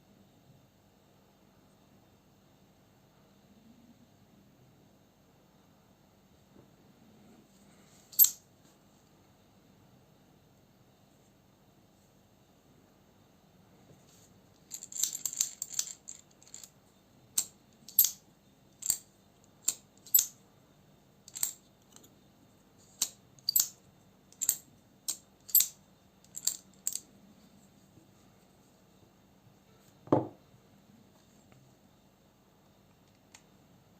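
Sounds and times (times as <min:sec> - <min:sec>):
small metal parts clicking: 0:08.1 - 0:08.4, 0:14.6 - 0:16.8, 0:17.4 - 0:18.2, 0:18.8 - 0:20.4, 0:21.3 - 0:22.1, 0:22.9 - 0:27.1.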